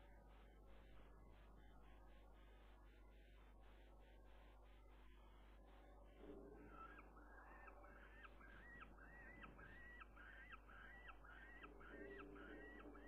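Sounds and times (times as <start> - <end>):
bird calling: 6.7 - 13.0.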